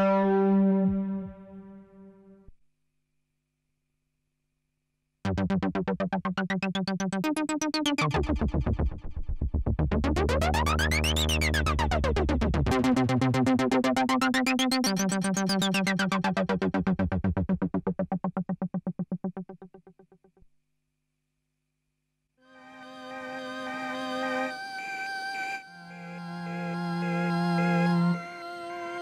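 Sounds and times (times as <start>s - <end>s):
synth bass notes: 0.0s - 2.2s, 5.3s - 20.2s
synthesizer sequenced pattern: 5.3s - 9.0s, 9.6s - 20.2s.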